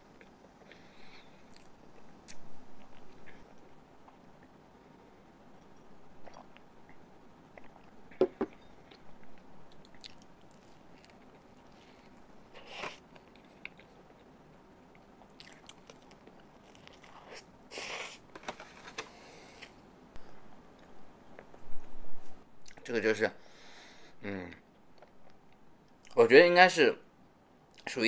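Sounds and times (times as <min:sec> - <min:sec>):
chewing and swallowing: 0:01.4 - 0:04.5, 0:05.6 - 0:08.0, 0:09.7 - 0:12.2, 0:15.0 - 0:17.2.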